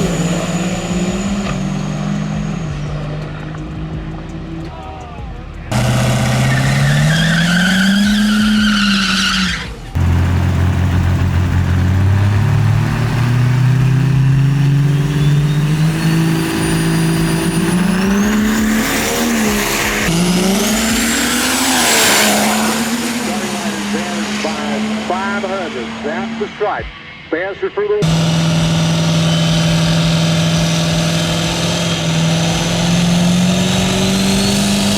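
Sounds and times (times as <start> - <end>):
diesel truck engines roaring: 0.0 - 34.9
high turbo whistle: 5.7 - 9.9, 12.3 - 27.3, 28.0 - 34.9.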